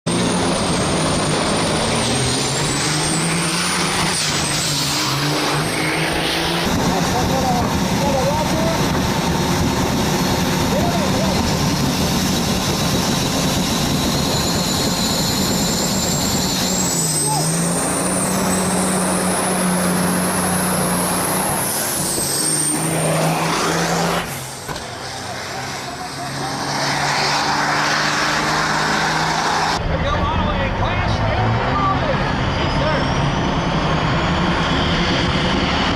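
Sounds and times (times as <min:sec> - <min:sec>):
powerful engine running: 0:00.1 - 0:35.9
high engine whistle: 0:13.2 - 0:25.2.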